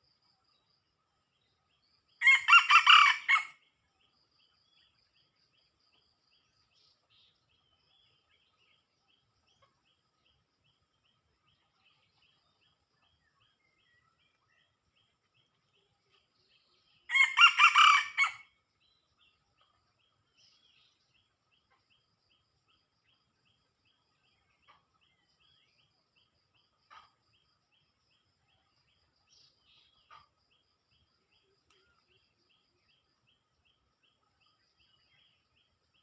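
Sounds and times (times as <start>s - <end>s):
rooster crowing: 2.2s - 3.5s, 17.1s - 18.4s
faint high chirps: 24.1s - 36.0s.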